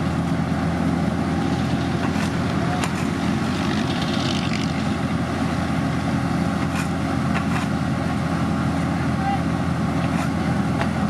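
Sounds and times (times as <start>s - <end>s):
paving machine engine running: 0.0s - 11.0s.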